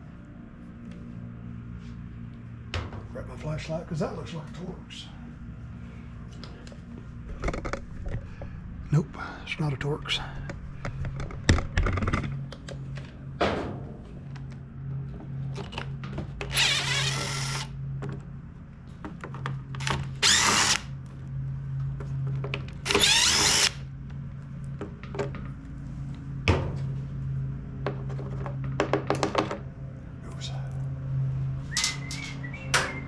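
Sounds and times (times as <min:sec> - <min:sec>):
steady low hum: 0:00.0 - 0:33.0
power drill spinning out screws: 0:16.5 - 0:17.7, 0:19.8 - 0:20.8, 0:22.8 - 0:23.8.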